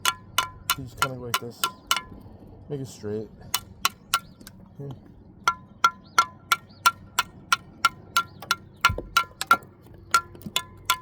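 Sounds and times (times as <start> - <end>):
trowel tapping brick: 0.0 - 2.2, 3.6 - 4.6, 5.5 - 11.0
dull thump: 8.8 - 9.6.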